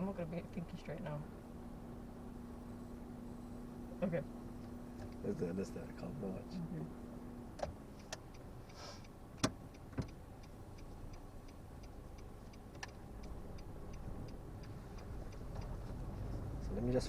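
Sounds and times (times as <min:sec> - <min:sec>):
engine and road hum: 0:00.0 - 0:17.0
turn indicator ticking: 0:00.0 - 0:17.0
sharp clicks and knocks: 0:07.6 - 0:08.5, 0:09.4 - 0:11.2, 0:11.8 - 0:16.4.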